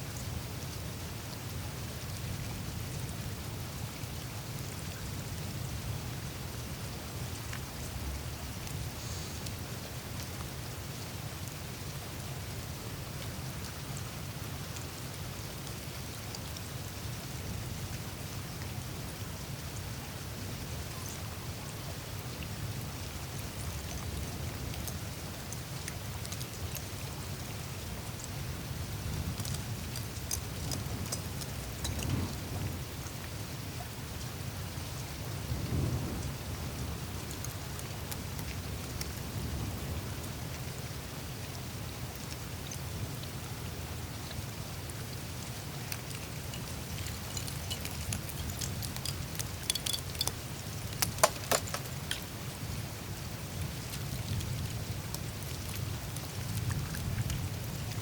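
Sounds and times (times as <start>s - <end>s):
meltwater trickling through ice: 0.0s - 58.0s
ice ticking and crackling: 28.1s - 32.7s, 45.8s - 52.6s
faint ticks: 45.9s - 50.4s.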